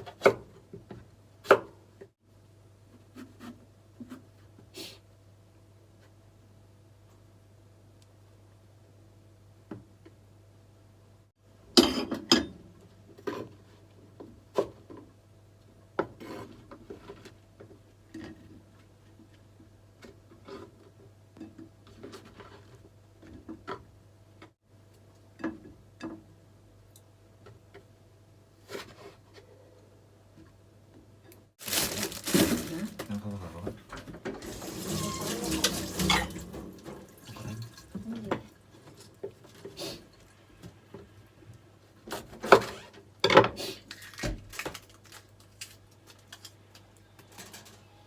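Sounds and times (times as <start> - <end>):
utensils and dishes clinking: 34.4 - 37.9.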